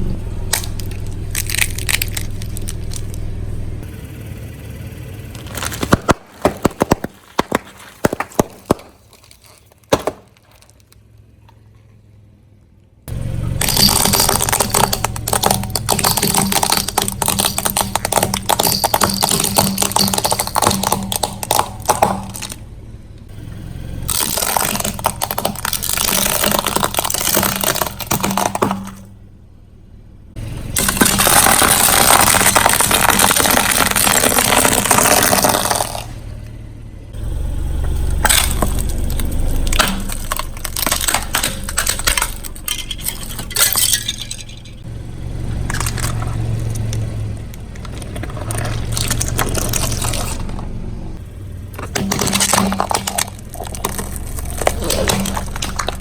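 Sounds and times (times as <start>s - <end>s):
car engine humming low: 0.0s - 31.4s, 35.4s - 56.0s
tyre crushing brittle objects: 0.5s - 3.2s, 5.3s - 11.0s, 13.4s - 22.6s, 24.1s - 29.1s, 30.7s - 36.4s, 38.0s - 44.9s, 45.6s - 50.7s, 51.7s - 56.0s.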